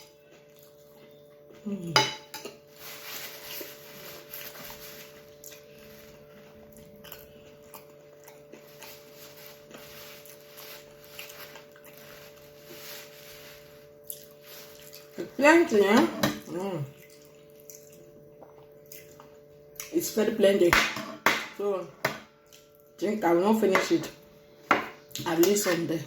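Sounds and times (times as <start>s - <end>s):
person chewing food: 0.0s - 1.9s, 3.6s - 12.9s, 13.9s - 15.2s, 16.9s - 19.9s.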